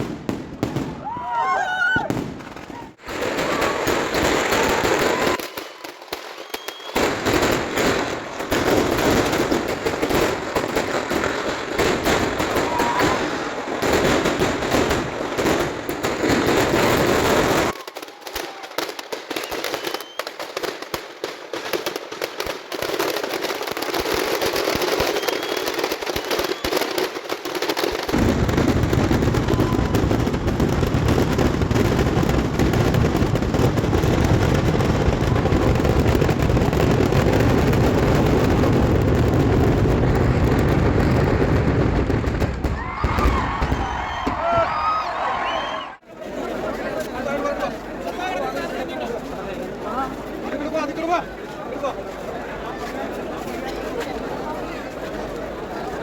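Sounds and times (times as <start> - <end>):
deep firework booms: 0.0 - 1.2, 2.0 - 17.8, 27.4 - 44.9
fireworks bangs and crackling: 0.0 - 56.0
heavy rumble of explosions: 28.1 - 44.8.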